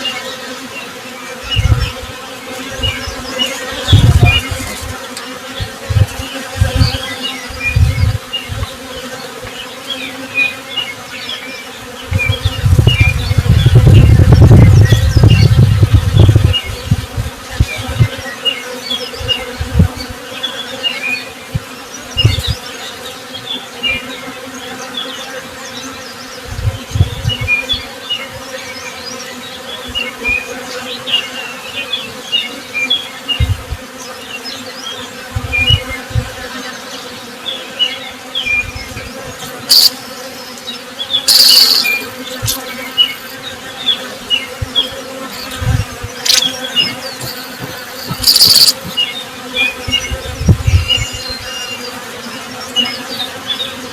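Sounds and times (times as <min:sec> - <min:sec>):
bees buzzing: 0:00.0 - 0:53.9
small birds chirping: 0:17.6 - 0:53.8
sharp high sound: 0:41.3 - 0:42.0.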